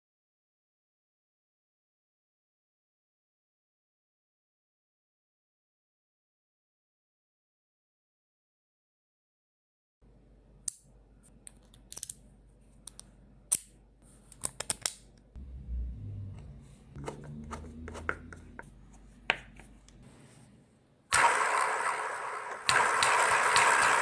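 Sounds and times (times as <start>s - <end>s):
magnets and steel balls clicking: 11.5s - 12.2s.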